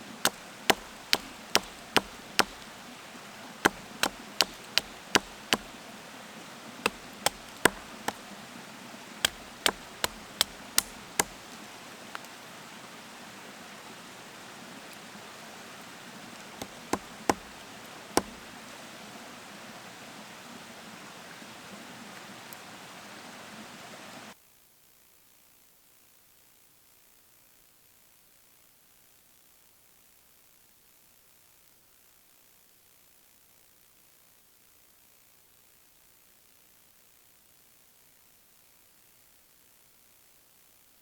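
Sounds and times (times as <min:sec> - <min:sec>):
steady background hiss: 0:00.0 - 0:41.0
sharp knocks: 0:00.3 - 0:02.8, 0:03.6 - 0:05.8, 0:06.8 - 0:08.2, 0:09.2 - 0:11.5, 0:16.6 - 0:17.6, 0:18.2 - 0:18.5.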